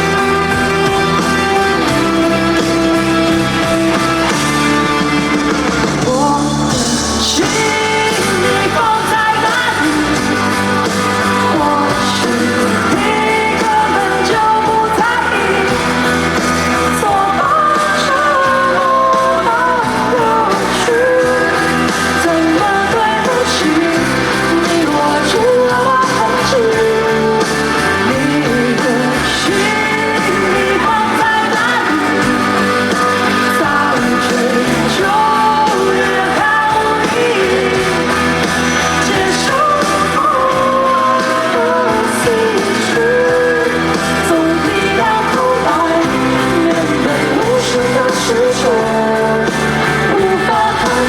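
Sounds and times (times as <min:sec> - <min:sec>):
person singing: 0:00.0 - 0:51.0
pop-rock band playing: 0:00.0 - 0:51.0.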